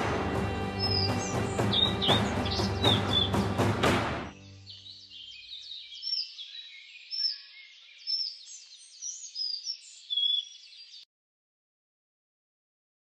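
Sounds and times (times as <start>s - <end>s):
music: 0.0s - 5.1s
small birds chirping: 0.8s - 3.7s, 4.3s - 11.1s.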